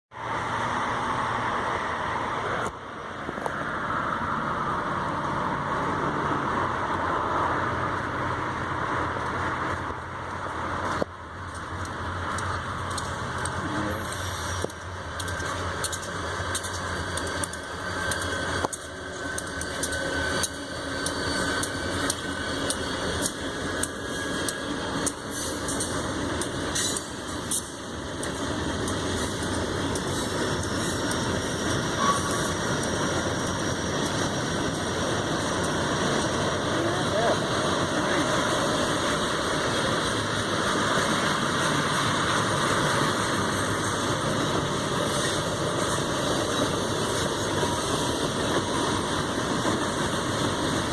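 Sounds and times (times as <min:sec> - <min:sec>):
freight train rumbling: 0:00.1 - 0:50.9.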